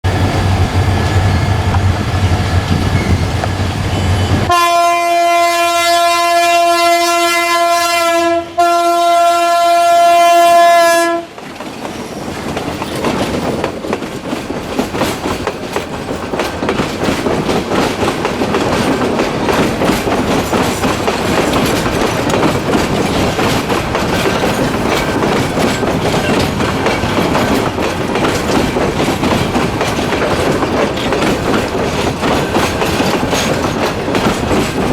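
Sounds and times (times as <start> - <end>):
train wheels clattering on rails: 0.0 - 5.5, 11.1 - 34.9
diesel locomotive engine hum: 0.0 - 34.9
train horn blasts: 3.9 - 11.4.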